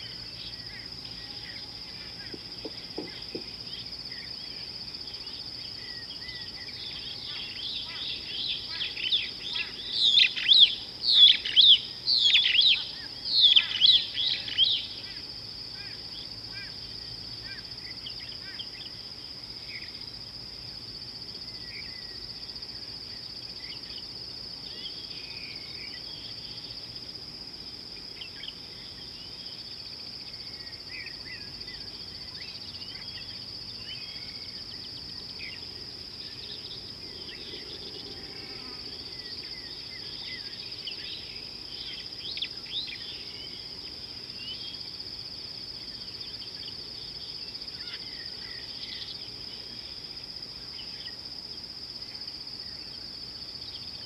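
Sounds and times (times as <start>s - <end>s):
high-pitched insect drone: 36.2s - 43.7s.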